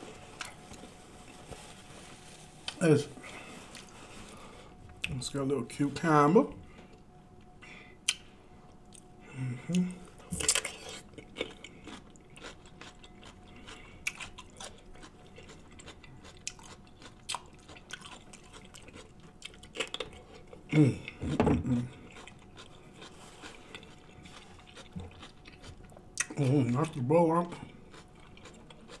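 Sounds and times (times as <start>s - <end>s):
crunching cucumber: 10.3s - 20.6s, 21.6s - 29.0s.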